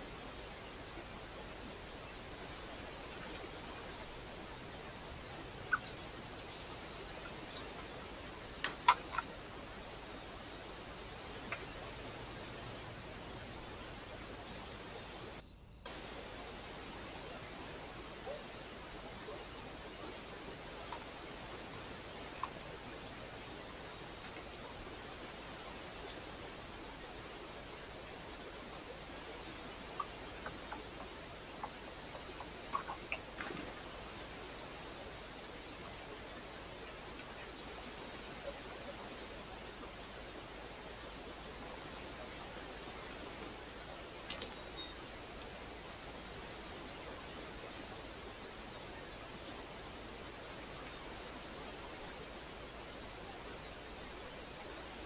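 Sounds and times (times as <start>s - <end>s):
microphone hiss: 0.0s - 55.0s
faint clicks and taps: 44.3s - 44.6s.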